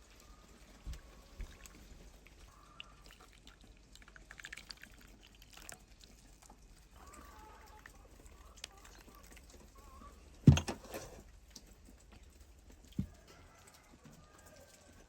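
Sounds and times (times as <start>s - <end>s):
soft handling thumps: 10.4s - 11.2s.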